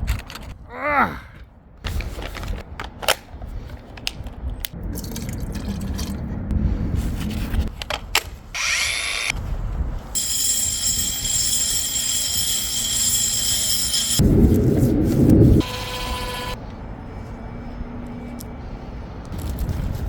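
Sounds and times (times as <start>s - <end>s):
objects being handled: 1.9s - 4.7s.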